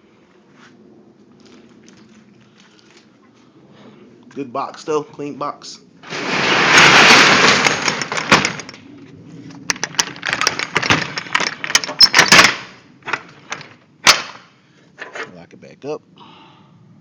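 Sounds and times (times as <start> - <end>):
truck cargo door rolling rattle: 6.0 - 8.9, 9.5 - 14.4
sharp clanks and knocks: 6.0 - 15.4.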